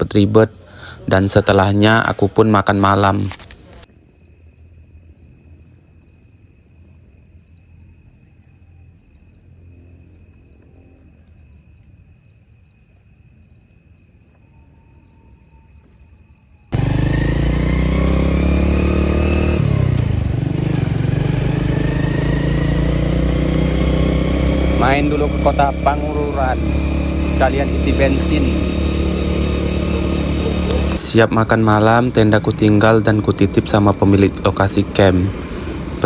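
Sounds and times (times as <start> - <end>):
crickets chirping: 0.0 - 36.0
motorcycle engine running: 16.8 - 36.0.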